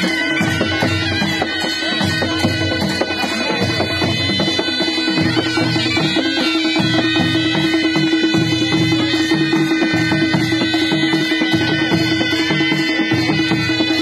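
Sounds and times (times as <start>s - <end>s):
drums and cymbals beat: 0.0s - 14.0s
reedy wind instrument melody: 0.0s - 14.0s.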